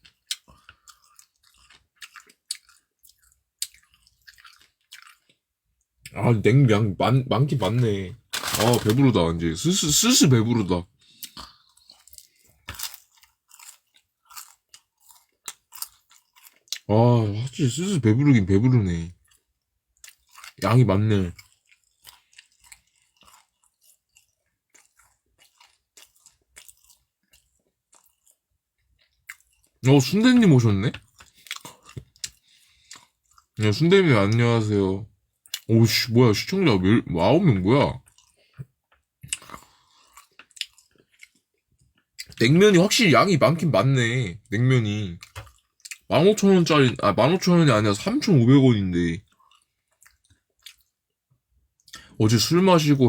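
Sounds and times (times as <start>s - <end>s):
person chewing noodles: 0.0s - 6.2s, 11.0s - 16.9s, 19.2s - 20.6s, 21.3s - 29.8s, 30.9s - 33.6s, 38.0s - 42.4s, 45.2s - 46.1s, 49.3s - 51.0s.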